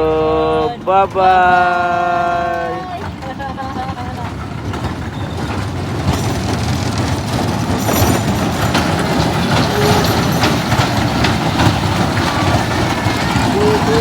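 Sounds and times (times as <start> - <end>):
fairground ride rumbling: 0.0 - 14.0
clattering clicks: 2.9 - 13.9.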